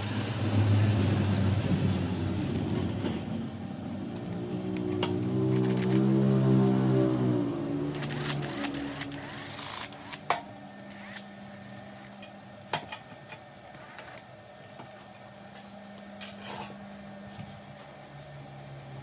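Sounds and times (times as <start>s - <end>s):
tools and sheet metal clicking: 0.0s - 1.6s, 4.1s - 6.2s, 7.7s - 11.3s.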